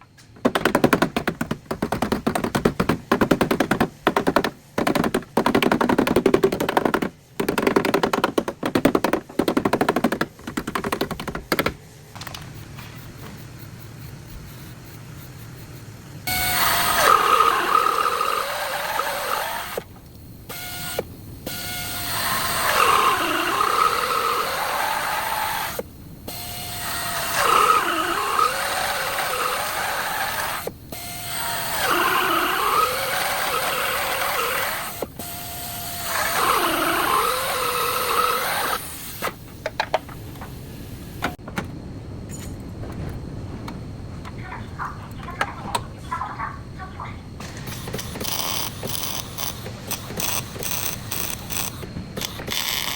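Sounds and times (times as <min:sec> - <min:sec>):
scattered clicks and knocks: 0:00.0 - 0:15.8, 0:39.2 - 0:40.6, 0:47.4 - 0:52.9
power tool cutting sheet metal: 0:16.3 - 0:19.8.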